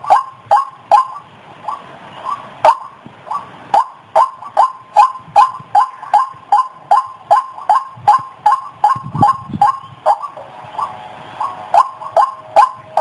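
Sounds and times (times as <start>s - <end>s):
waterhen calling: 0.0s - 13.0s.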